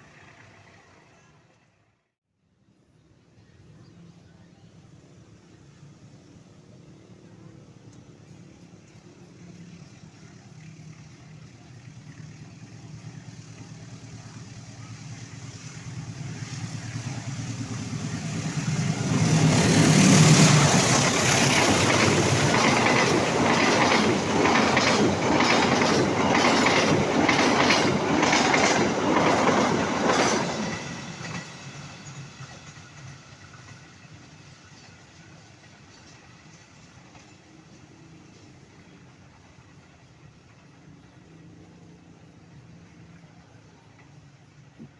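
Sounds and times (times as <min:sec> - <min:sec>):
train passing: 0:00.0 - 0:02.1, 0:03.6 - 0:44.9
wheels clattering over rail joints: 0:20.2 - 0:33.8.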